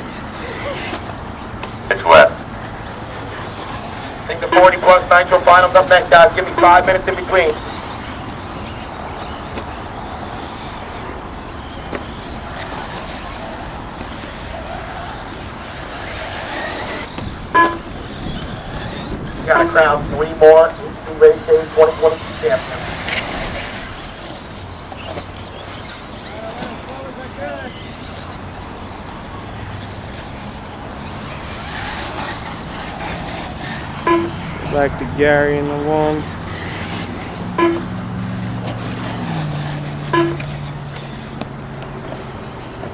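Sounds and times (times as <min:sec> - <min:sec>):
rc car motors whining: 0:00.0 - 0:42.9
person speaking: 0:19.4 - 0:22.8.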